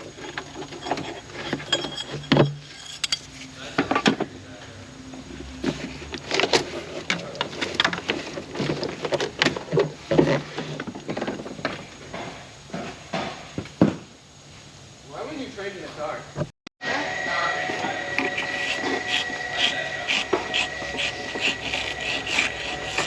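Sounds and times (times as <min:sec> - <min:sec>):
hand tools clinking on metal: 0:00.3 - 0:03.3.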